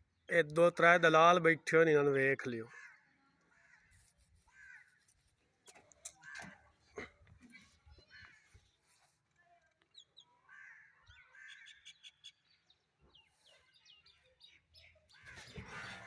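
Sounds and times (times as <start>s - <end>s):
bird chirps: 11.0s - 16.0s.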